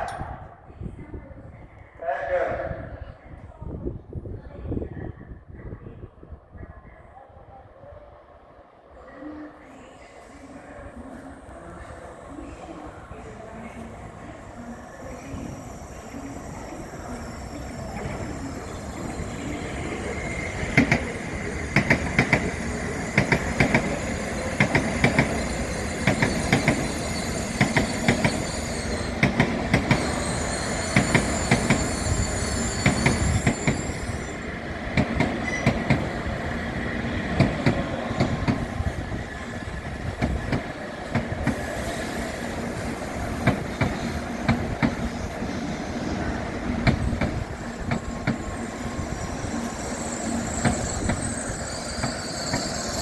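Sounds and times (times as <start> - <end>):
train rumble: 0.0 - 53.0
train wheels clacking: 15.2 - 34.3, 34.9 - 36.3, 37.3 - 38.7, 40.1 - 45.7, 46.8 - 53.0.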